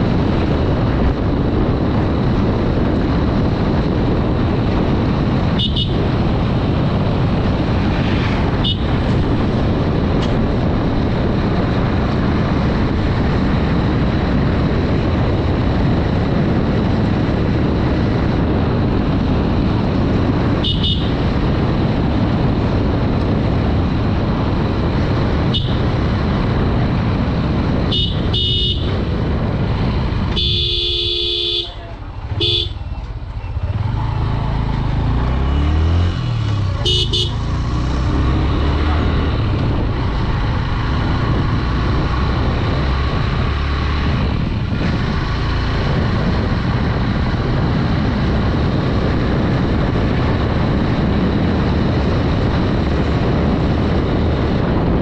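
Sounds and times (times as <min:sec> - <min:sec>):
motorcycle engine: 0:00.0 - 0:55.0
wind rush: 0:00.0 - 0:55.0
motorcycle horn toots: 0:05.5 - 0:06.1, 0:08.6 - 0:09.0, 0:20.6 - 0:21.3, 0:25.4 - 0:25.9, 0:27.8 - 0:29.1, 0:30.3 - 0:33.0, 0:36.8 - 0:37.4.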